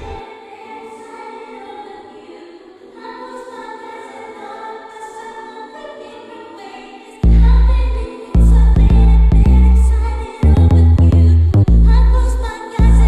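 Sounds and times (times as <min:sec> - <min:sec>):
choir singing held chords: 0:00.0 - 0:10.6.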